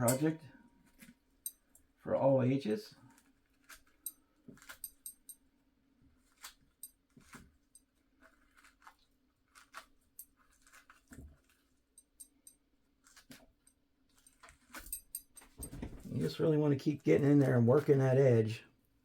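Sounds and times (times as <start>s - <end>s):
knife clicking and scraping orange: 3.6s - 5.4s, 6.2s - 15.4s.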